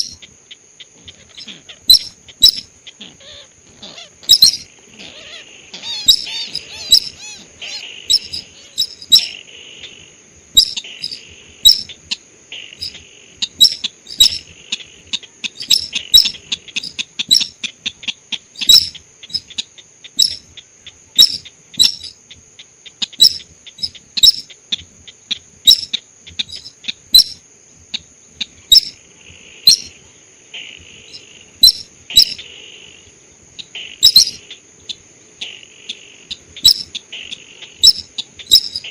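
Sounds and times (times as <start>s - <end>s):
buzzy bird trills: 0.0s - 38.9s
bird chip notes: 4.0s - 9.4s, 10.6s - 12.0s, 12.7s - 14.9s, 29.6s - 30.0s, 31.0s - 32.5s, 34.0s - 34.5s, 36.4s - 37.0s, 37.8s - 38.9s.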